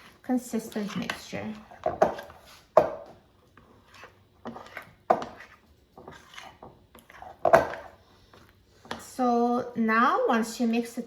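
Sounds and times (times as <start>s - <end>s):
utensil scraping a mixing bowl: 0.0s - 3.0s, 3.6s - 9.3s.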